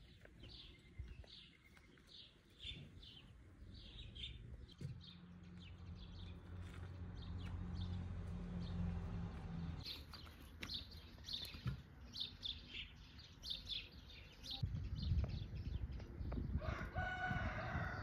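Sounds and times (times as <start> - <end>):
bird chirping: 0.0 - 8.9, 9.8 - 16.5.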